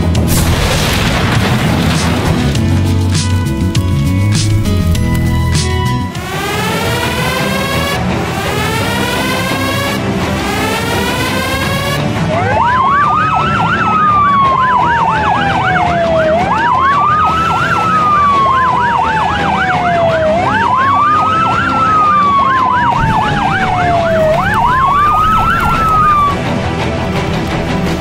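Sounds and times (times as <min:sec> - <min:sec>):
siren slow wail: 0:04.1 - 0:27.6
siren fast warble: 0:04.6 - 0:26.5.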